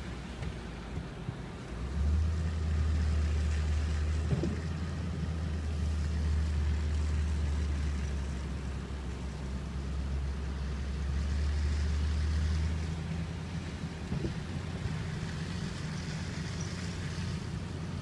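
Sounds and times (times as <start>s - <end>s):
car driving rumble: 0.0s - 18.0s.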